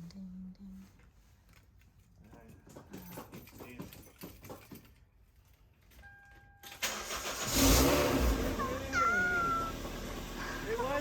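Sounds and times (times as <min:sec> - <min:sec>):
car engine cranking and starting: 0:06.6 - 0:11.0.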